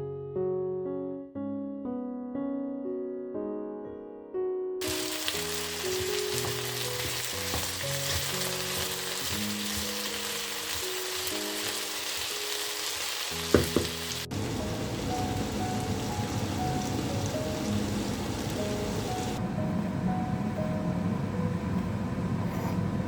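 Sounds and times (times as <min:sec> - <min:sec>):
soft piano music: 0:00.0 - 0:23.0
food sizzling in a pan: 0:04.8 - 0:19.4
sharp knocks: 0:13.6 - 0:14.0.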